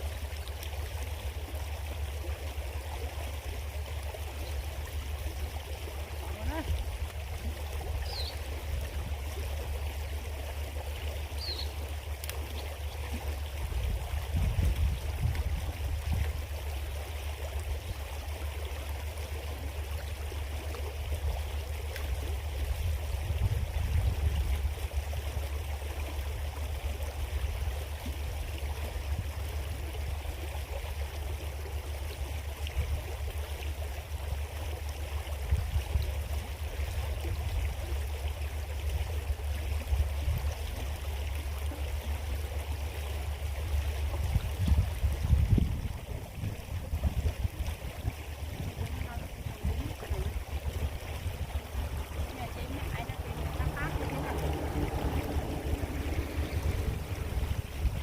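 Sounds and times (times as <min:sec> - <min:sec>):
creek babbling: 0:00.0 - 0:58.0
low rumble: 0:49.5 - 0:58.0.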